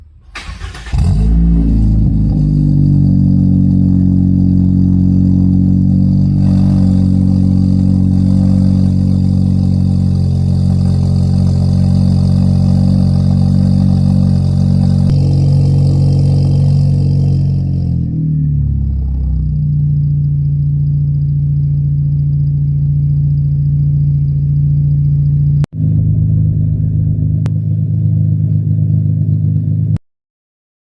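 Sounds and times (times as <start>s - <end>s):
car engine starting and idling: 0.0s - 30.0s.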